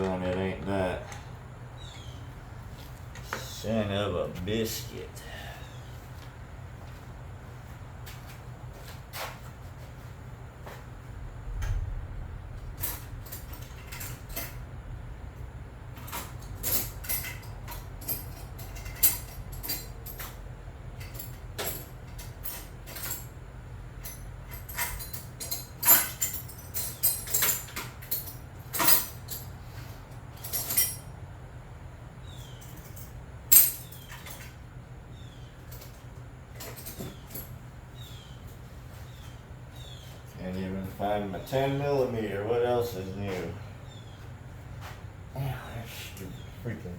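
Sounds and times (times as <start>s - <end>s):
steady low hum: 0.0s - 46.9s
tools and metal parts clinking: 12.7s - 14.6s, 16.0s - 23.4s, 24.0s - 31.2s, 32.4s - 34.6s, 35.6s - 37.6s.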